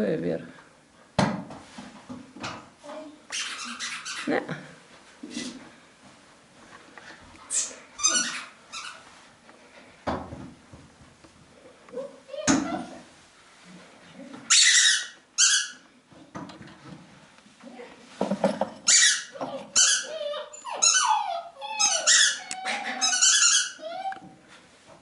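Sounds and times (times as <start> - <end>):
animal squeaking and whining: 3.3 - 4.4, 7.5 - 9.1, 14.5 - 15.8, 18.8 - 24.3.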